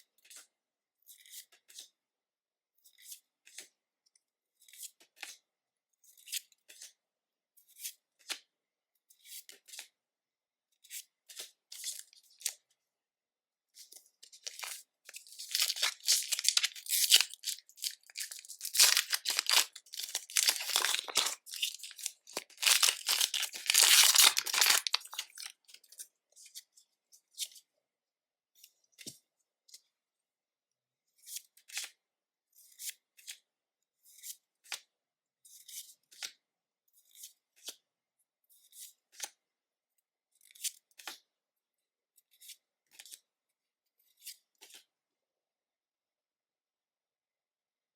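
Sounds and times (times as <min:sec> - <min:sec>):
packaging tearing and crinkling: 0:14.5 - 0:25.5.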